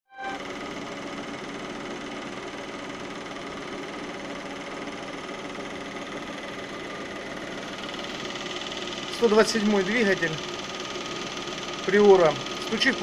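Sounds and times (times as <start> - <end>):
rapid valve ticking: 7.8 - 13.0.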